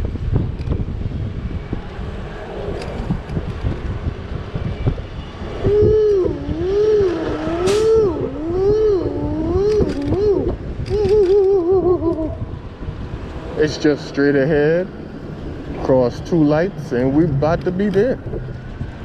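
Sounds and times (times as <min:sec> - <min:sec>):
street traffic: 0:00.0 - 0:19.0
wind rumbling: 0:00.0 - 0:19.0
pitched tone sliding up and down: 0:05.4 - 0:12.5.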